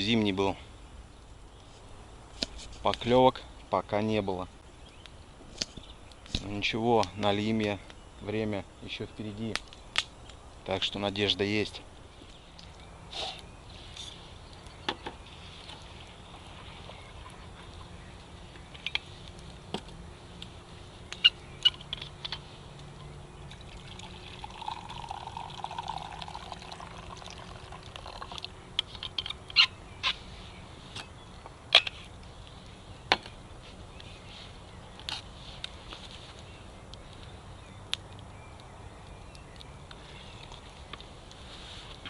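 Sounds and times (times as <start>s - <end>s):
background hiss: 0.0s - 42.0s
campfire crackling and popping: 0.8s - 30.2s, 30.9s - 42.0s
trickling water: 23.3s - 29.7s.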